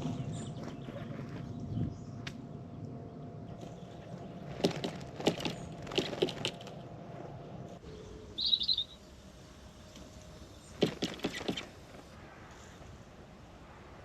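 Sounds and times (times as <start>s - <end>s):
high-pitched bird chirp: 7.9s - 9.0s.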